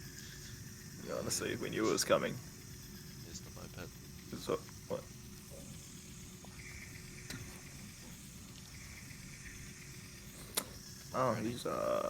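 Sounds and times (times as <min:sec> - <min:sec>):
sharp click: 0:10.5 - 0:10.7
small click: 0:10.5 - 0:10.7.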